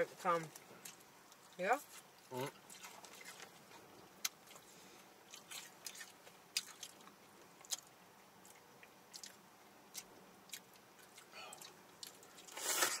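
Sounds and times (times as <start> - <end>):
chewing crunchy fried chicken: 0.5 - 13.0.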